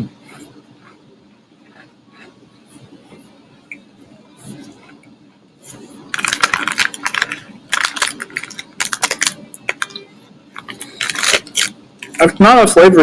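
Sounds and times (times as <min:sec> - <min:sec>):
cookie crunching while chewed: 0:06.1 - 0:10.0, 0:10.6 - 0:12.3.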